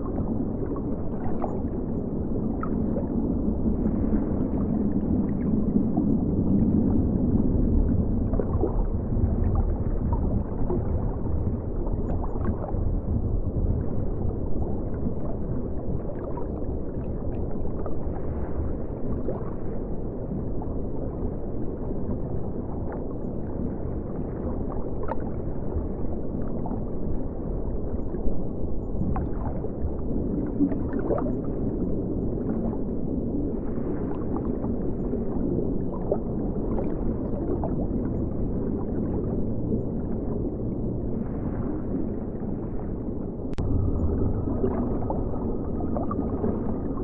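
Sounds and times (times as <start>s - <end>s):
faint water gurgling: 0.0s - 47.0s.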